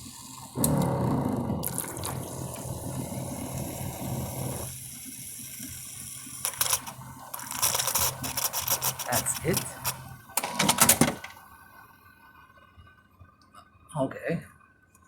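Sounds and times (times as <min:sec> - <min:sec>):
coffee machine pump humming: 0:00.0 - 0:12.0
coffee streaming into cup: 0:00.2 - 0:11.5.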